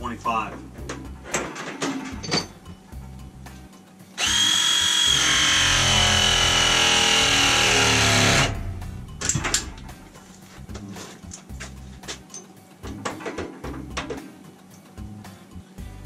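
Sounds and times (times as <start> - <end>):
power drill whine: 4.2 - 8.6.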